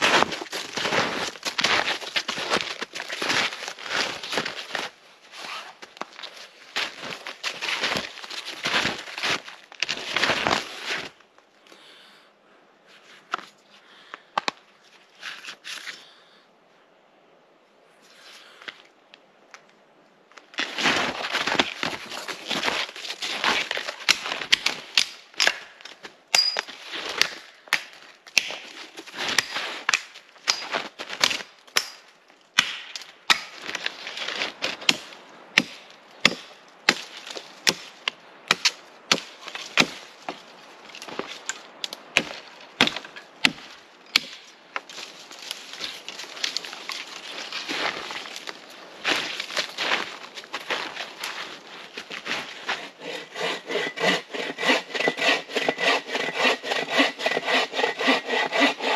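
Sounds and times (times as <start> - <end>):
wood being chopped: 26.3 - 28.6, 32.6 - 33.6, 34.8 - 37.9, 38.5 - 40.0, 41.8 - 44.4.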